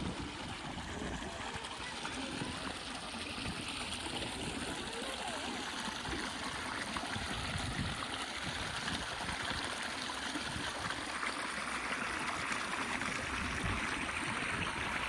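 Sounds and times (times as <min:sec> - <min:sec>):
stream rushing and trickling: 0:00.0 - 0:15.0.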